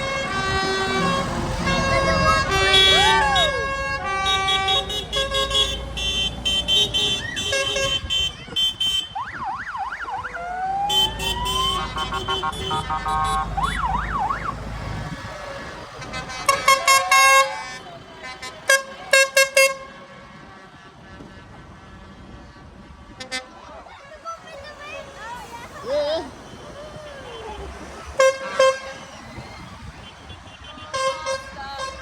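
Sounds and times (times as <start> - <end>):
tractor engines rumbling: 0.0 - 32.0
tractor horns: 0.0 - 32.0
warbling siren: 9.1 - 18.0, 26.6 - 30.2.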